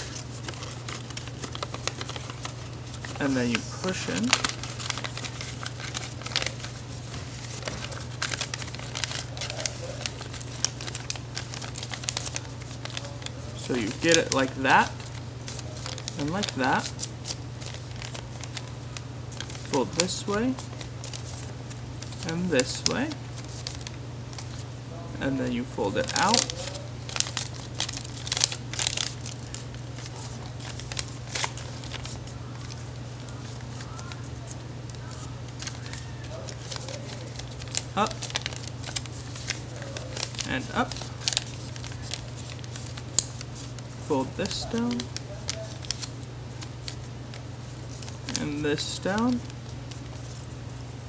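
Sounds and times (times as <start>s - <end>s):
paper crinkling and crackling: 0.0s - 51.0s
steady low hum: 0.0s - 51.0s.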